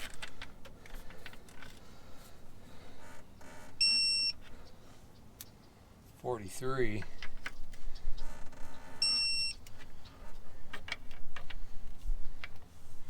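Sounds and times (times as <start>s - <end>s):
faint clicks and tool handling: 0.0s - 2.4s
electronic beep: 3.8s - 4.4s, 9.0s - 9.6s.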